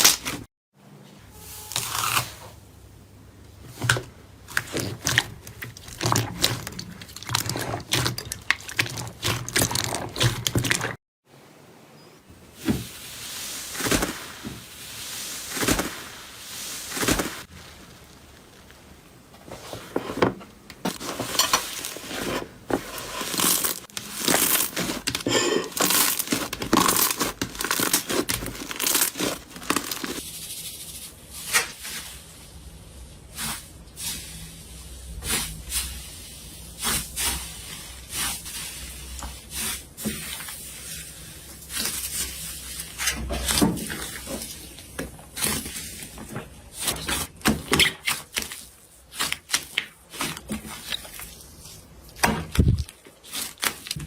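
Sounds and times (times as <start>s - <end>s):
slime popping and crackling: 23.3s - 30.2s.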